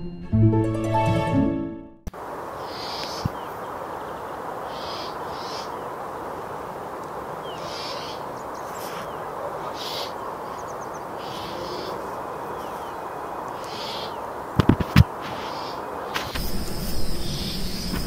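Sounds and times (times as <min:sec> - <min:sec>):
background hiss: 0:02.1 - 0:18.0
rasping bird calls: 0:02.6 - 0:03.6, 0:04.6 - 0:05.9, 0:07.4 - 0:16.3.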